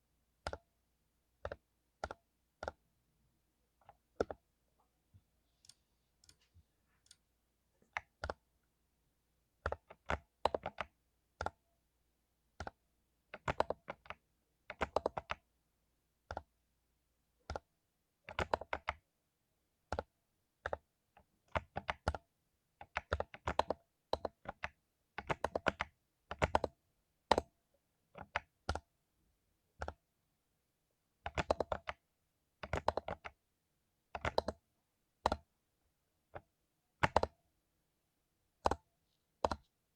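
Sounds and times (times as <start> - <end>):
mechanical keyboard typing: 9.6 - 11.6, 13.4 - 15.4, 18.3 - 19.0, 21.5 - 22.2, 22.8 - 27.5, 31.2 - 32.0, 32.6 - 33.4, 34.1 - 34.6, 36.4 - 37.4, 38.6 - 39.7.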